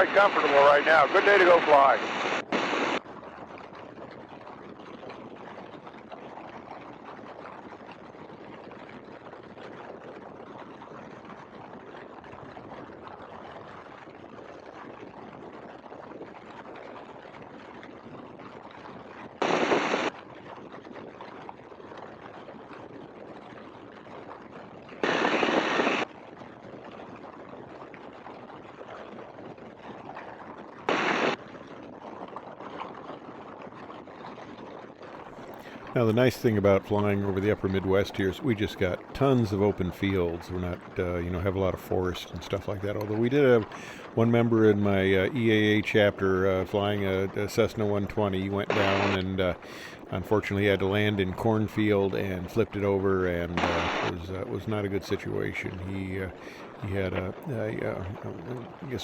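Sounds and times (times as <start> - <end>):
bursts of rushing wind: 0.0 - 4.7, 18.3 - 21.2, 24.9 - 26.9, 29.4 - 32.6, 34.3 - 59.0
muffled biplane engine: 0.0 - 8.9, 35.2 - 59.0.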